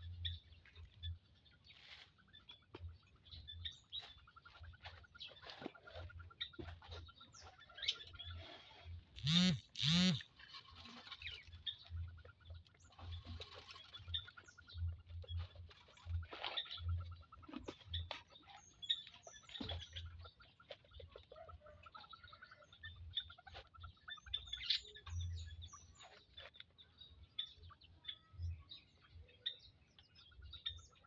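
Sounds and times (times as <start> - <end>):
quails chirping: 0.0 - 31.0
loud bird calls: 1.8 - 26.5
fast twittering trill: 9.2 - 12.0.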